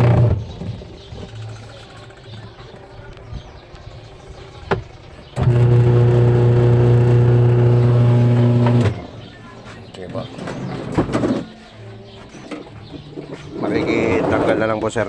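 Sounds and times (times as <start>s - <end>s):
washing machine motor humming: 0.0s - 0.4s, 5.3s - 9.3s.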